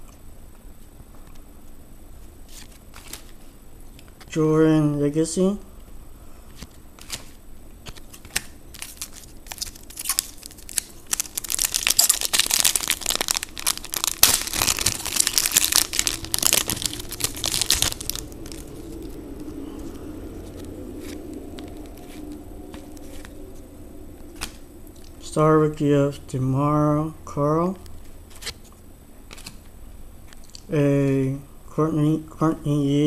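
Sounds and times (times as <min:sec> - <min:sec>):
wrapper crinkling and tearing: 0:07.0 - 0:19.5.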